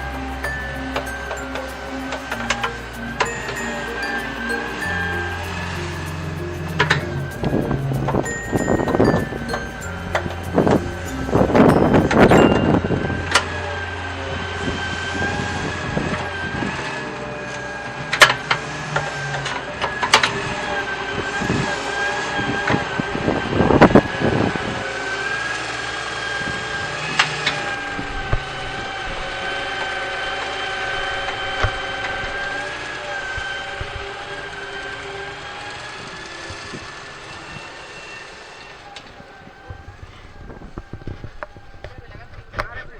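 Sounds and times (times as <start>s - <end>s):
toy electric motor whining: 0.0s - 25.8s, 26.4s - 42.6s.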